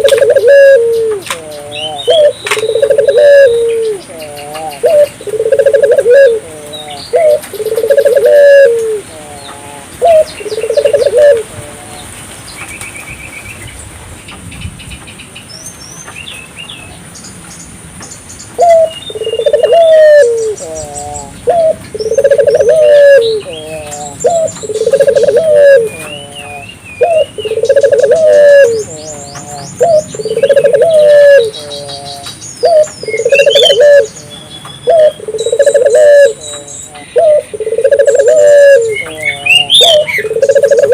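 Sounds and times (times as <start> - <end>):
doves cooing: 0.0 - 12.2, 18.6 - 40.9
small birds chirping: 0.0 - 40.9.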